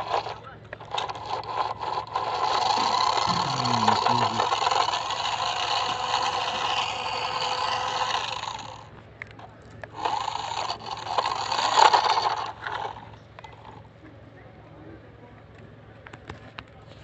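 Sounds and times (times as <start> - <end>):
small motor buzzing: 0.0 - 8.9, 9.9 - 13.9.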